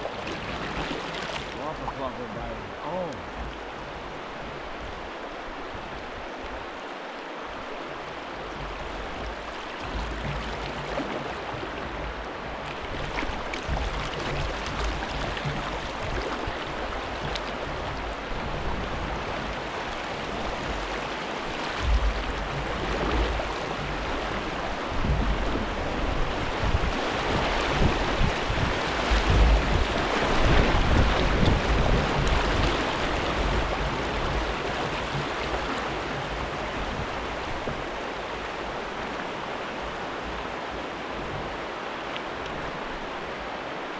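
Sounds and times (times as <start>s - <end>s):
rushing river water: 0.0s - 43.9s
wind buffeting microphone: 7.5s - 41.8s.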